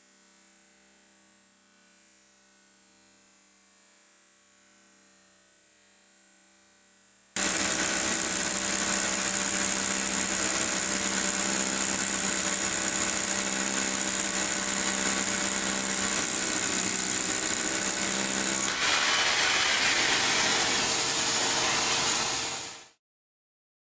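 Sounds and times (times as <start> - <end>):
rotary hammer running: 7.4 - 22.8.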